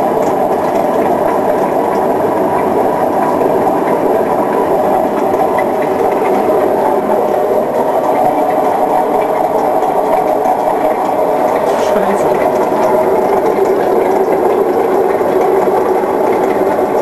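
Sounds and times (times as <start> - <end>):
washing machine drum spinning: 0.0 - 17.0.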